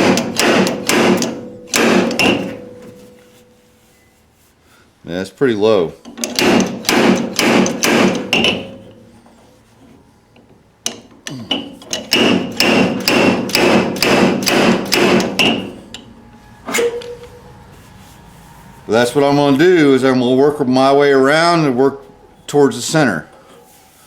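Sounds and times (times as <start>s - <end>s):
hammer ringing on sheet metal: 0.0s - 3.0s, 6.4s - 9.2s, 12.1s - 17.2s.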